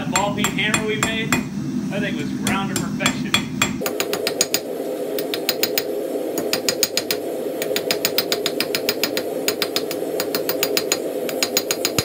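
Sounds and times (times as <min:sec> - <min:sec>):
hammer striking steel on anvil: 0:00.0 - 0:01.5, 0:02.4 - 0:04.6, 0:05.2 - 0:12.0
steady low hum: 0:00.0 - 0:12.0.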